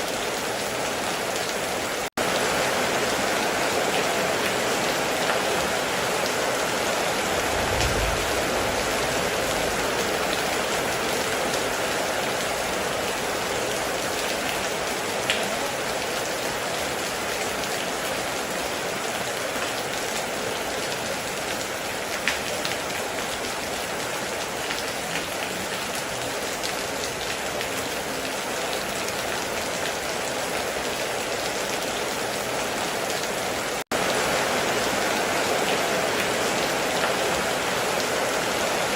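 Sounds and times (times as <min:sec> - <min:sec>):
heavy rain falling: 0:00.0 - 0:38.9
sharp raindrop hits: 0:07.0 - 0:11.6.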